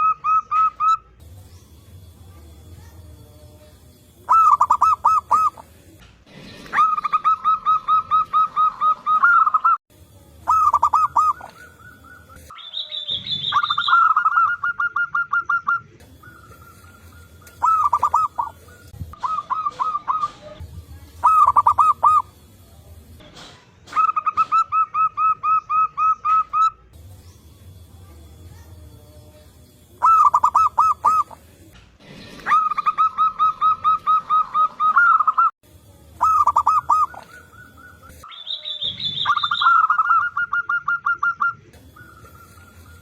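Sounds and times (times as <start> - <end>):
doves cooing: 4.3 - 9.8, 10.5 - 22.4, 30.0 - 31.6, 32.2 - 35.5, 36.2 - 43.0.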